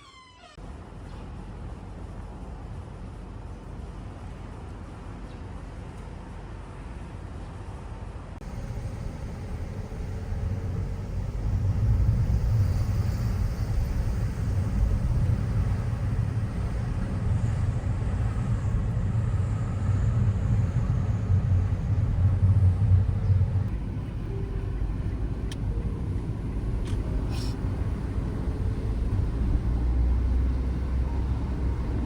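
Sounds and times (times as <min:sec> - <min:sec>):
low steady rumbling: 0:08.4 - 0:32.0.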